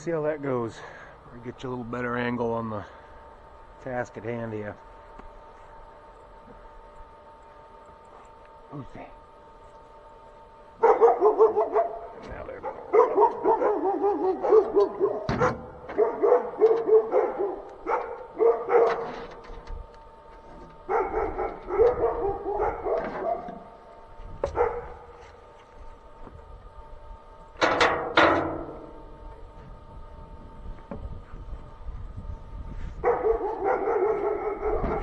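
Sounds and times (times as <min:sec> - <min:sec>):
dogs barking: 0:10.8 - 0:19.4, 0:20.8 - 0:23.8, 0:24.4 - 0:25.2, 0:33.0 - 0:35.0.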